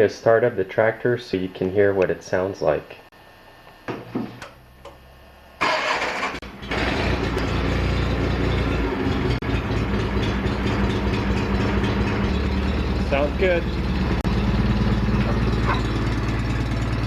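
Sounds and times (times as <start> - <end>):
lawn tractor engine running: 5.6 - 17.0
starter cranking engine: 5.6 - 17.0.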